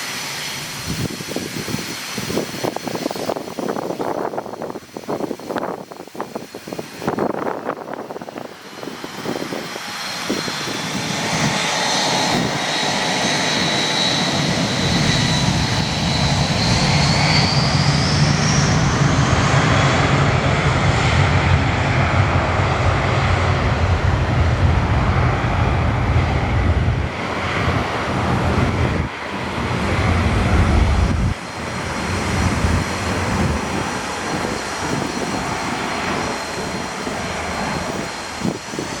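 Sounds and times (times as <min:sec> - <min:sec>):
jet engines whining and rumbling: 0:00.0 - 0:39.0.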